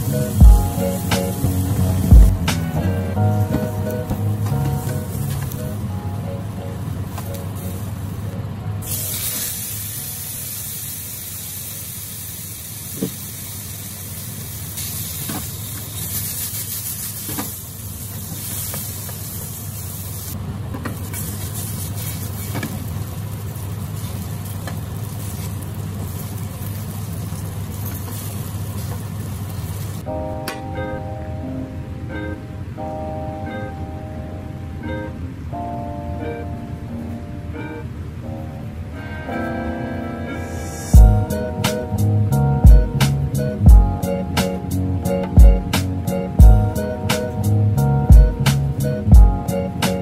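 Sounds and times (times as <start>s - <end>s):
low steady hum: 0.0s - 10.5s
food sizzling in a wok: 8.8s - 20.4s, 21.0s - 30.0s.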